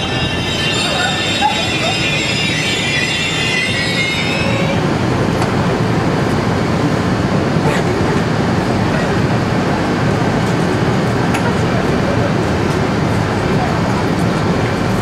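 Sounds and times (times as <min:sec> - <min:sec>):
train brakes squealing: 0:00.0 - 0:04.9
steady rumbling noise: 0:00.0 - 0:15.0.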